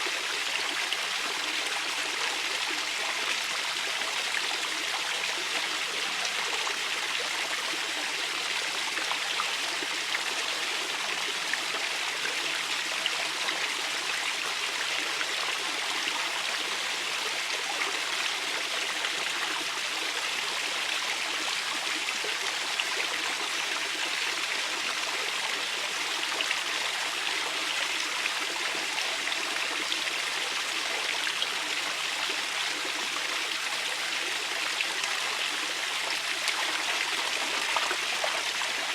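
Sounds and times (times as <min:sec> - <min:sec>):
river water running over stones: 0:17.4 - 0:38.9.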